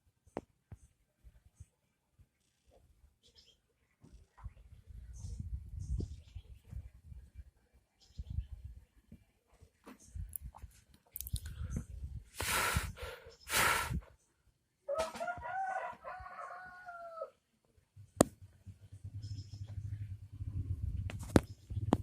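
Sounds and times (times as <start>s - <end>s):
rooster crowing: 14.9s - 17.4s
low hum: 18.0s - 22.0s.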